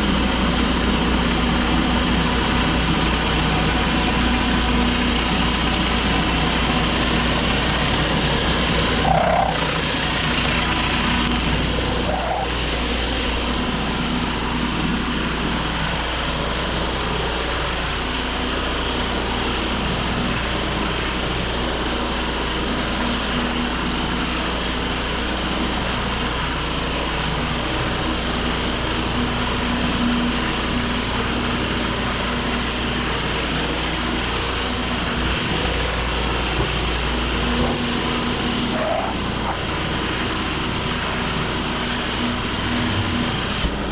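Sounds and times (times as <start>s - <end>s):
pressure washer engine running: 0.0s - 43.9s
water spray hissing: 6.6s - 14.8s, 30.6s - 43.9s.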